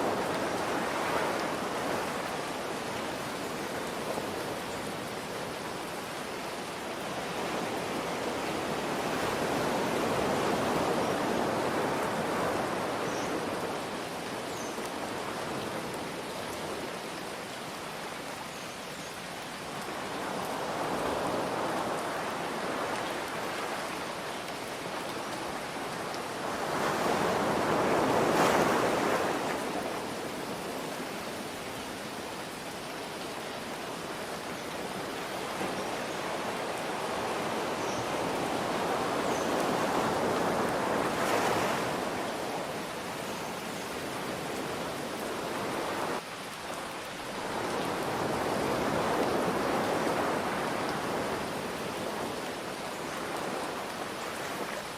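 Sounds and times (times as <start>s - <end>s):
ocean waves washing in: 47.2s - 54.8s.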